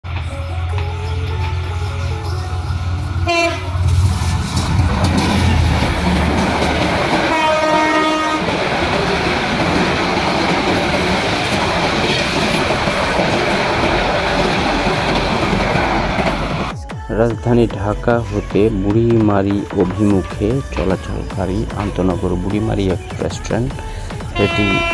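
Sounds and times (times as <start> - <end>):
train rushing past: 0.1 - 16.8
train horn: 3.2 - 3.9, 7.2 - 8.6, 24.4 - 24.9.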